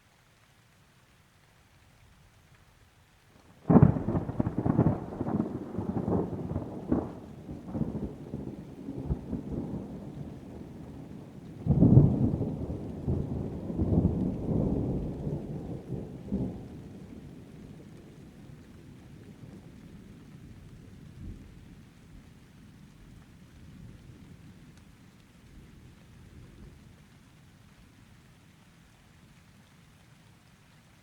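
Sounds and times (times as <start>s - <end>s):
rain: 0.0s - 31.0s
thunder crack and rumble: 3.7s - 20.2s.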